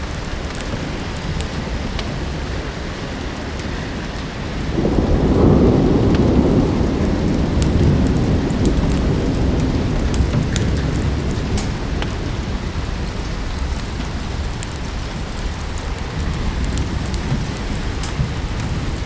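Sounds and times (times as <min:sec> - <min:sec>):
steady rain: 0:00.0 - 0:19.0
thunder rumbling: 0:00.0 - 0:19.0
wood fire crackling: 0:00.0 - 0:19.0.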